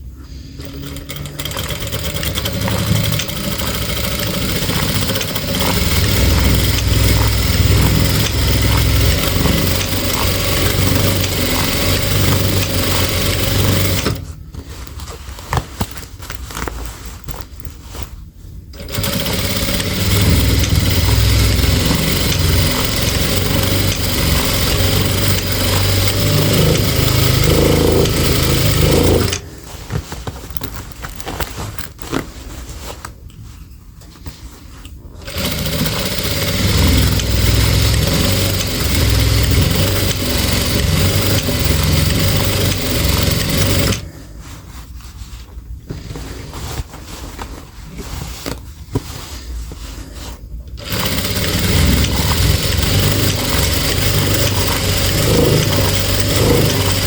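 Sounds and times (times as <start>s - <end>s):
sewing machine stitching: 0.5s - 15.0s, 18.7s - 29.8s, 35.2s - 44.1s, 50.7s - 57.0s.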